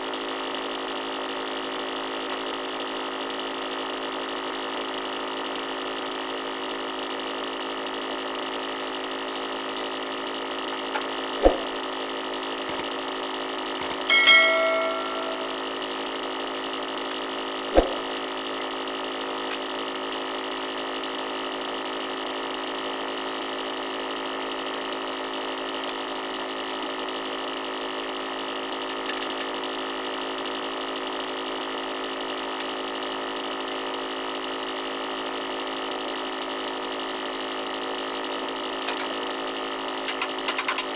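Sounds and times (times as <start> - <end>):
sharp knocks: 11.4 - 11.8, 17.8 - 18.0
metallic clang: 14.1 - 15.7.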